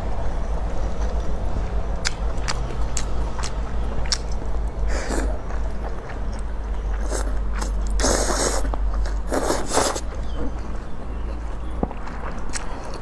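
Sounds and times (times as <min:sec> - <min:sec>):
person slurping noodles: 0:04.9 - 0:05.4, 0:07.0 - 0:10.1.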